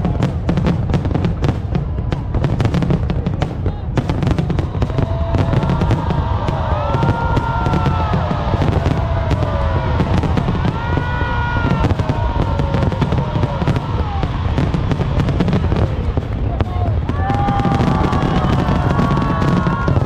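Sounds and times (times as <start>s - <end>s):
fireworks bursts rumbling: 0.0s - 20.0s
fireworks crackling: 0.0s - 20.0s.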